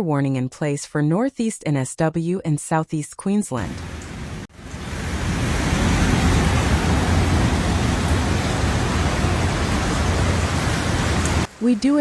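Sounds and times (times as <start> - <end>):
heavy rain rushing: 3.6 - 11.6.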